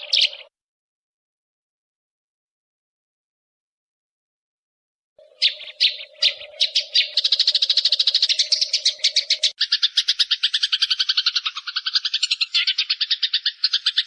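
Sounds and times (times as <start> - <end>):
sparrows chattering: 0.0 - 0.5, 5.2 - 14.0.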